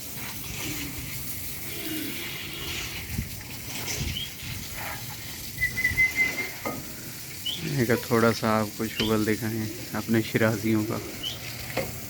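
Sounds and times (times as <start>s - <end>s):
thin high bird call: 5.6s - 6.7s.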